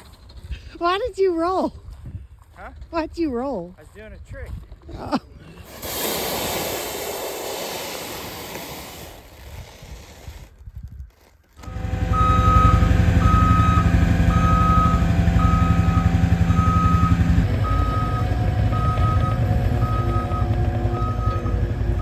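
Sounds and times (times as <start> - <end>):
reversing alarm beeping: 11.6 - 22.0
skid steer engine running: 11.6 - 22.0.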